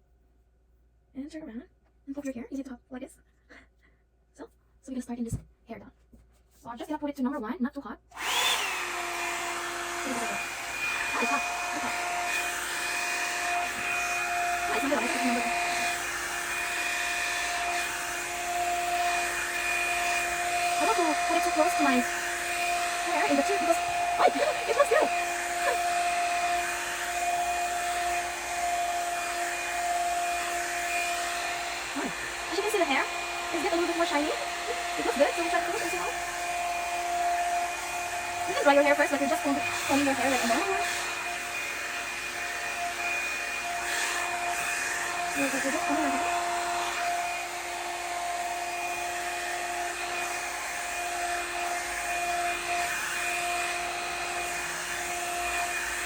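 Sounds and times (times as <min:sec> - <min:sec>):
hot-air brush fan whine: 0:08.2 - 0:56.0.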